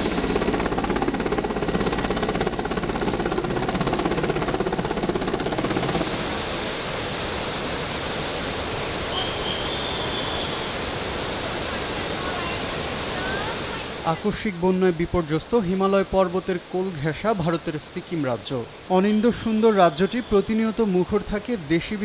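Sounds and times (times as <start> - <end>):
helicopter rotor beating: 0.0 - 7.1
floodwater rushing: 5.6 - 22.0.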